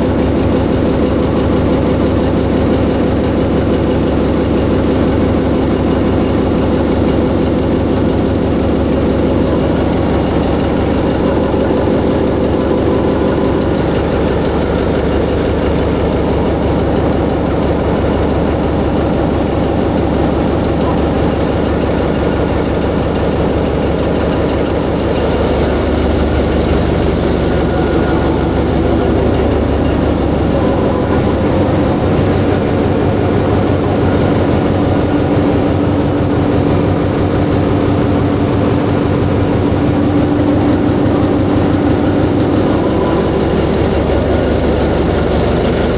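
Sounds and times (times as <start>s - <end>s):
diesel generator engine running: 0.0s - 45.9s.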